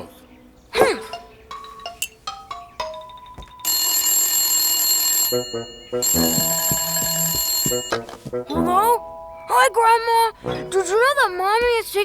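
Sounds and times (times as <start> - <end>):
short musical notes: 1.0 - 3.7, 5.3 - 11.0
telephone bell ringing: 1.5 - 8.2.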